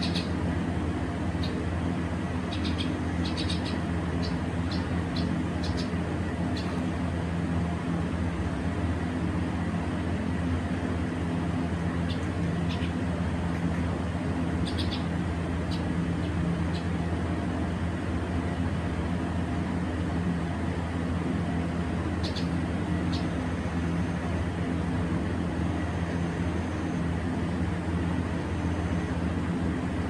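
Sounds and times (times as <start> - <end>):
birds chirping high: 0.0 - 7.2, 11.8 - 17.7, 21.7 - 24.4
low mechanical hum: 0.0 - 30.0.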